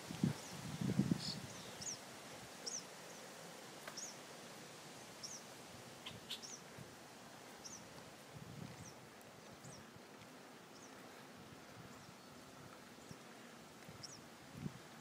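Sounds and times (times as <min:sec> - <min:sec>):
outdoor background noise: 0:00.0 - 0:15.0
bird chirping: 0:01.2 - 0:02.0, 0:02.6 - 0:03.3, 0:03.9 - 0:04.2, 0:05.2 - 0:06.7, 0:07.6 - 0:07.9, 0:08.8 - 0:09.9, 0:10.7 - 0:11.0, 0:14.0 - 0:14.3.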